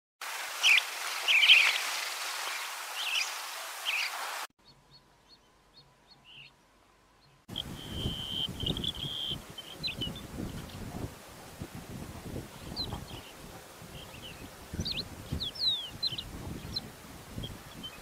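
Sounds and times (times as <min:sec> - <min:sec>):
steady hiss: 0:00.2 - 0:04.5
small bird chirping: 0:03.0 - 0:10.9, 0:14.0 - 0:18.0
wind on microphone: 0:07.5 - 0:18.0.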